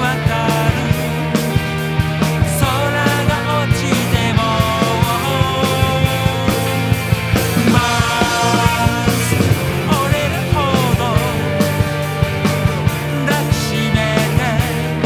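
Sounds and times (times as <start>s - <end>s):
bass guitar: 0.0s - 15.0s
drums: 0.0s - 15.0s
lead electric guitar bending notes: 4.4s - 15.0s.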